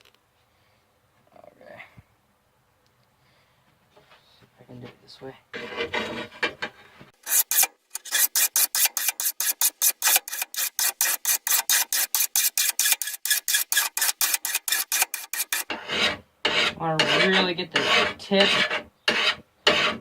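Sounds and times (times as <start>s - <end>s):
metal file rasping on blade: 5.6s - 6.5s, 7.2s - 20.0s.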